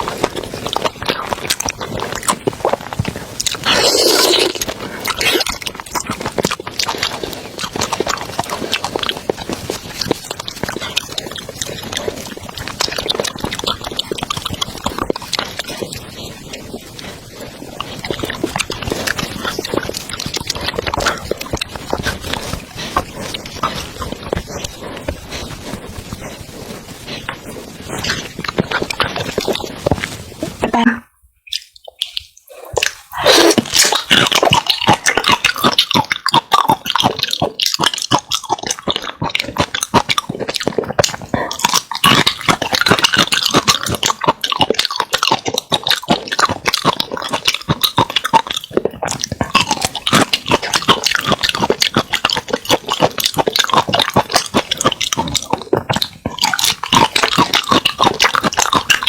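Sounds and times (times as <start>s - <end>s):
mouth clicks and smacks: 0.0s - 59.0s
wet chewing: 0.0s - 59.0s.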